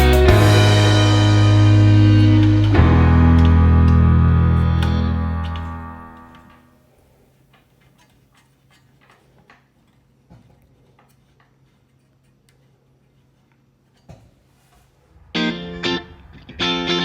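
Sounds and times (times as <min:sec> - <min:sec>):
low steady hum: 0:00.0 - 0:06.7.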